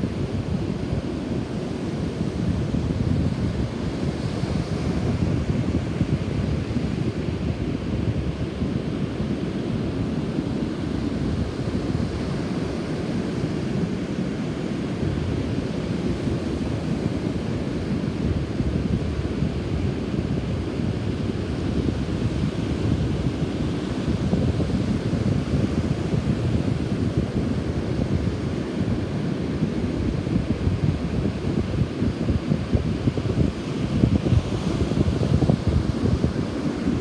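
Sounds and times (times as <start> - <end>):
rough sea surf: 14.0 - 37.0
wind buffeting microphone: 18.2 - 37.0.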